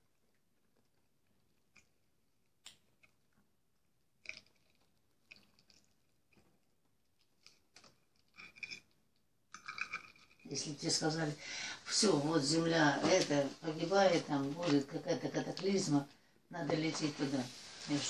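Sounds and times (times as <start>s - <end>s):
faint chewing: 0.0s - 10.5s.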